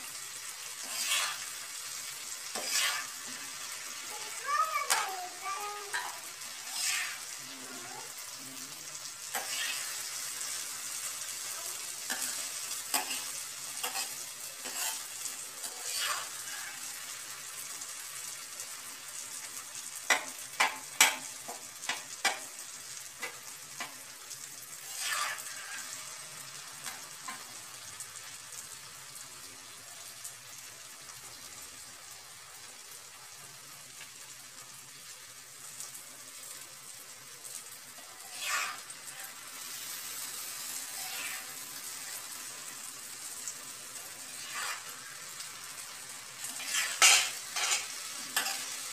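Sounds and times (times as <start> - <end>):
vegetables sizzling in a pan: 0.0 - 48.9
spatula scraping a pan: 0.6 - 7.4, 9.3 - 11.0, 12.0 - 17.1, 24.8 - 26.2, 38.0 - 42.7, 44.1 - 48.9.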